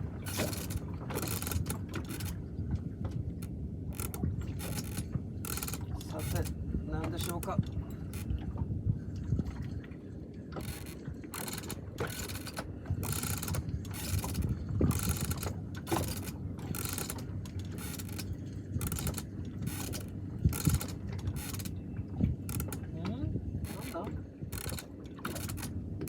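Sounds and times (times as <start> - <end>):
fishing reel gears whirring: 0.2 - 2.4, 3.9 - 6.5, 10.6 - 21.8, 22.4 - 22.8, 23.7 - 25.7.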